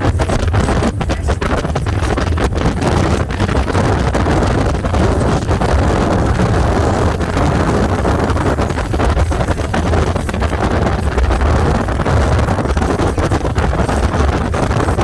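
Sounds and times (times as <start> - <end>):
boat engine low rumble: 0.0 - 15.0
wind buffeting microphone: 0.0 - 15.0.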